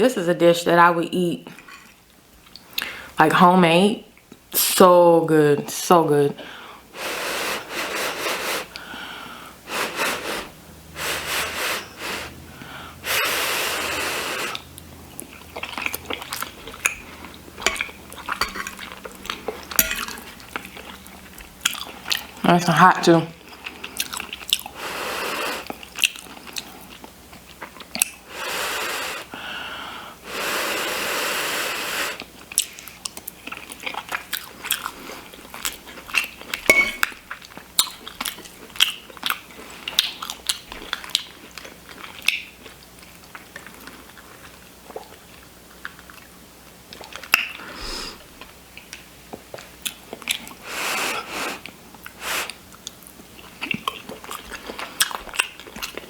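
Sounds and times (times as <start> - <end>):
chewing and mouth sounds: 14.4 - 22.4, 23.4 - 28.2, 32.2 - 47.6, 48.4 - 50.6, 51.6 - 56.0.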